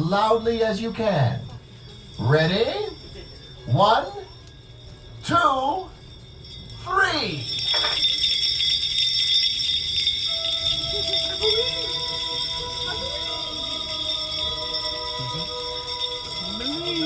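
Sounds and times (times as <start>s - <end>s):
sleigh bells jingling: 0.0s - 17.0s
music playing: 9.9s - 17.0s.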